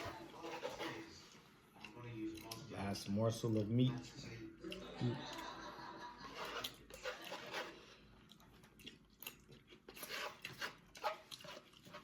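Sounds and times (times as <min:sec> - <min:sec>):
person chewing food: 0:03.6 - 0:12.0.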